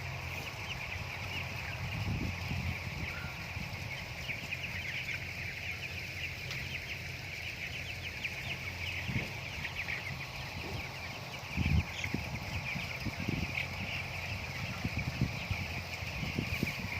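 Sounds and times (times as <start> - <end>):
chickens peeping: 0.0 - 16.9.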